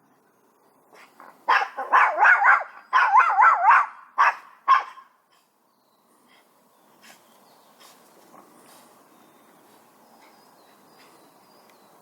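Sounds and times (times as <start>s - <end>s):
small dog barking: 1.5s - 5.1s.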